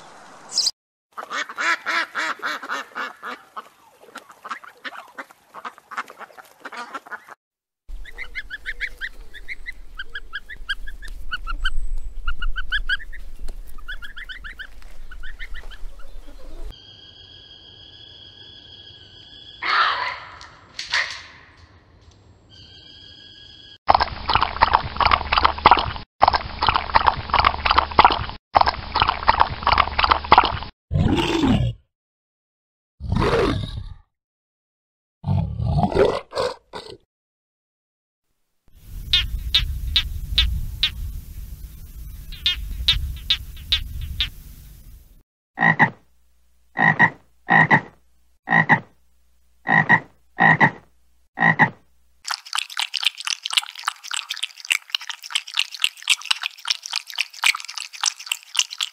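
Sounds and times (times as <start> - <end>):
dog lapping water: 23.9 - 30.7, 52.3 - 58.9
frog croaking: 42.2 - 44.4, 45.6 - 46.0, 46.8 - 49.0, 49.6 - 51.8.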